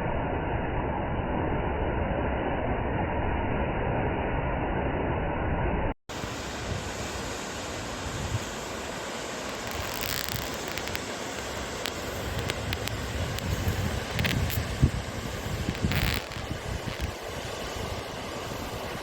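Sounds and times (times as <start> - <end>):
bursts of hiss: 6.1 - 19.0
wind noise on microphone: 6.2 - 7.3, 7.9 - 8.6, 9.5 - 19.0.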